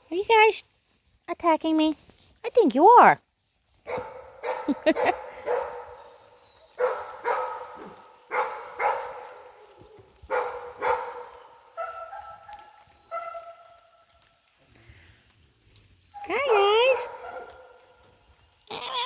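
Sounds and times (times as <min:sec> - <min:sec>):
dog barking: 0:03.9 - 0:06.1, 0:06.7 - 0:13.8, 0:16.5 - 0:17.9.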